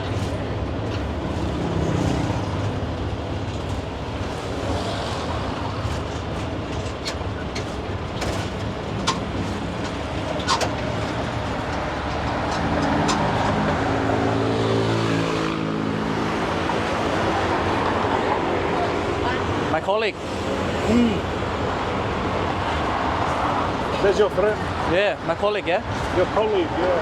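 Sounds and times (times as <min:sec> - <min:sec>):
road and engine rumble: 0:00.0 - 0:27.0
vehicle accelerating: 0:08.2 - 0:19.2.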